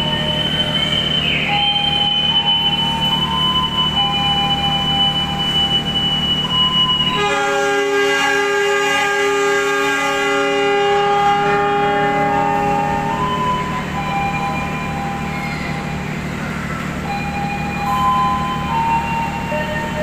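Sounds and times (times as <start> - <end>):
locomotive engine idling hum: 0.0 - 7.6, 10.5 - 20.0
high steady whistle tone: 0.0 - 20.0
locomotive horn blast: 7.0 - 14.0.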